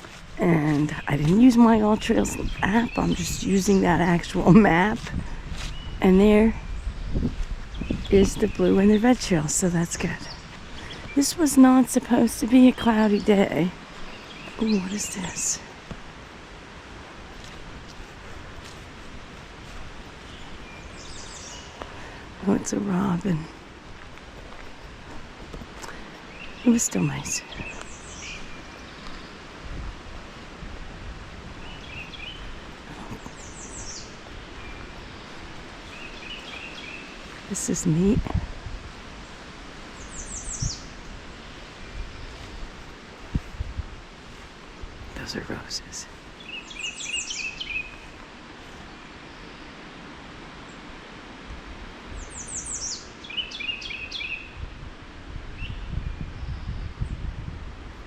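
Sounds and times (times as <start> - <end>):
wind noise: 0.0 - 49.1, 49.8 - 58.0
wild birds chirping: 0.0 - 54.8, 55.4 - 57.3.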